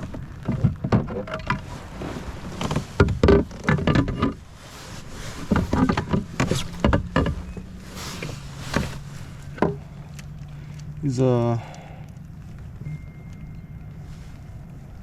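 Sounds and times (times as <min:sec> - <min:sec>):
steady low hum: 0:00.0 - 0:15.0
gear knocking and rattling: 0:02.6 - 0:11.2.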